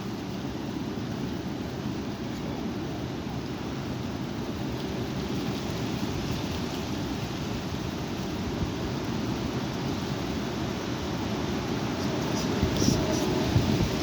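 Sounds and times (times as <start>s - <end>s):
wind buffeting microphone: 10.7s - 14.0s.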